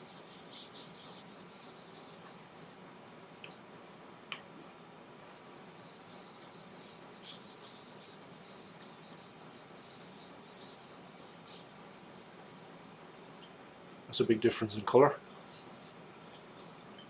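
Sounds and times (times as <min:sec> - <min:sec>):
cloth rubbing oil onto wood: 0:05.9 - 0:12.8.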